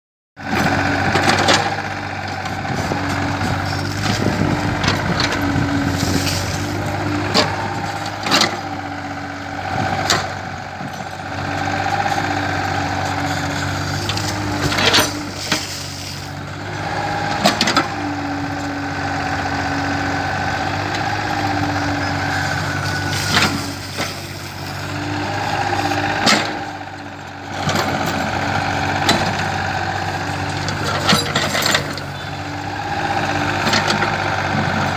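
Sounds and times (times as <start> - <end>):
excavator diesel engine running: 0.4 - 34.9.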